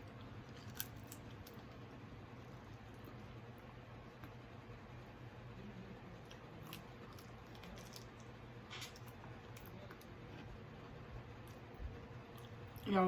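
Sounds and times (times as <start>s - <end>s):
person chewing food: 0.0s - 4.4s
steady low hum: 0.0s - 13.0s.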